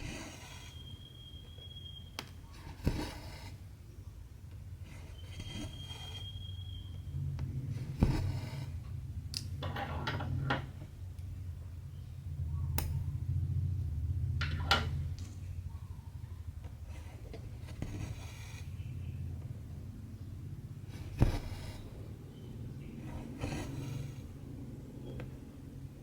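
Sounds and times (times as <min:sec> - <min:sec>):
low steady hum: 0:00.0 - 0:26.0
thread pulled through fabric: 0:02.5 - 0:03.6, 0:04.8 - 0:06.8.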